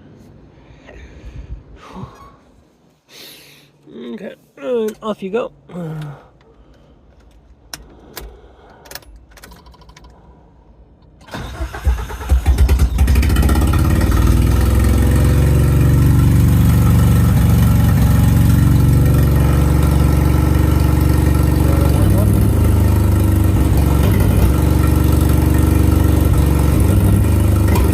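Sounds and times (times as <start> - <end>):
engine cranking and idling: 7.0 - 27.9.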